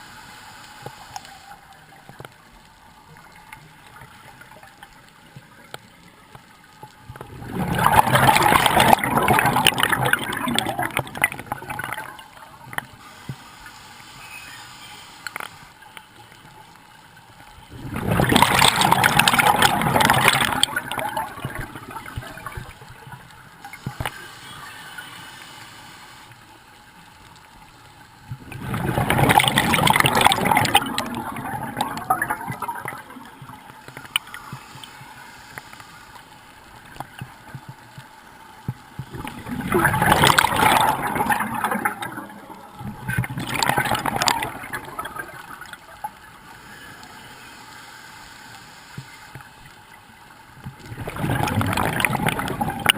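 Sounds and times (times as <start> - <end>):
underwater exhaled bubbles: 6.8 - 13.4, 17.6 - 25.1, 28.2 - 47.6, 48.9 - 52.9.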